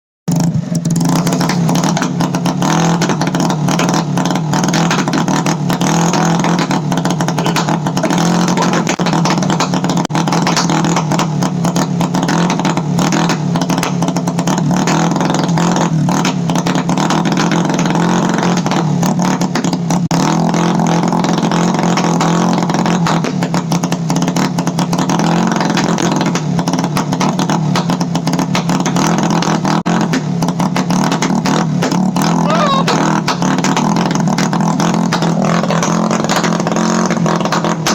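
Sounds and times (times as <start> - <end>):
exhaust pops and bangs: 0.3 - 37.9
scooter engine on rev limiter: 0.3 - 37.9.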